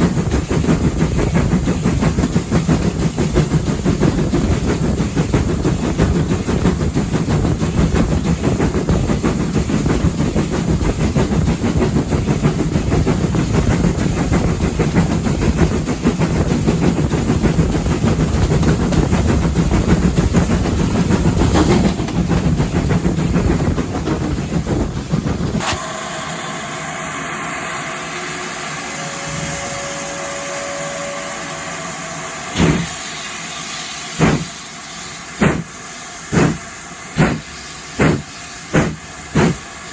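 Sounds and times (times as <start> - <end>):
rail clatter: 0.0 - 25.8, 34.2 - 34.5, 35.4 - 39.7
steam train rumble: 0.0 - 39.9
escaping steam hiss: 25.6 - 39.9
sharp knocks: 35.4 - 35.7, 38.0 - 39.6.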